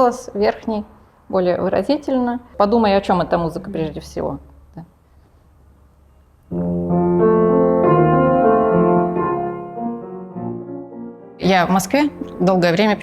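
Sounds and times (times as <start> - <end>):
slow piano: 6.1 - 12.8.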